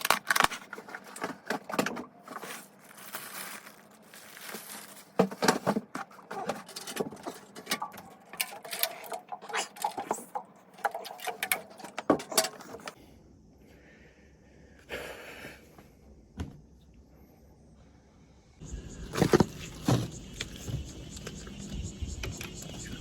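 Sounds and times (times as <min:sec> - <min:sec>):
tools and parts handled by hand: 0:00.0 - 0:13.0.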